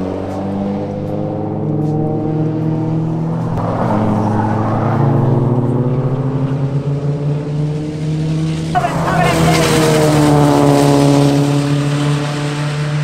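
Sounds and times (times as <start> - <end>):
car engine pulling hard: 0.0 - 13.0.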